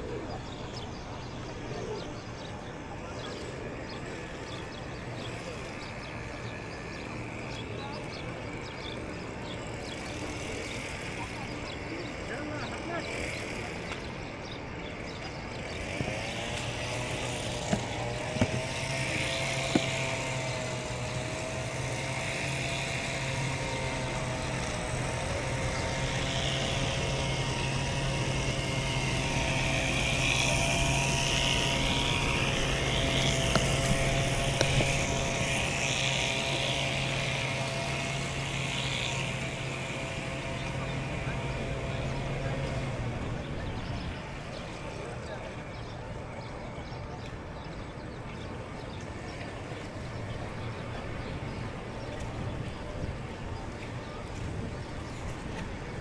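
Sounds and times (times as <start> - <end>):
motor hum: 13.0 - 43.4.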